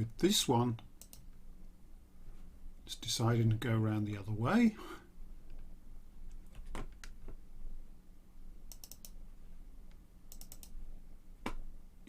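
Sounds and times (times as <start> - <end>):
computer mouse clicks: 1.0 - 1.3, 8.7 - 9.2, 10.3 - 10.8.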